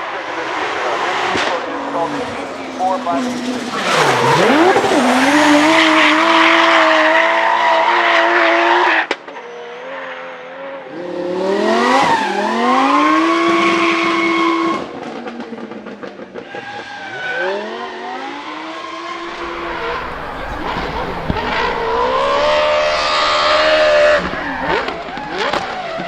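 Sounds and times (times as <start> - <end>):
car engine revving: 0.3 - 8.4, 19.2 - 26.0
tyres squealing: 19.2 - 26.0.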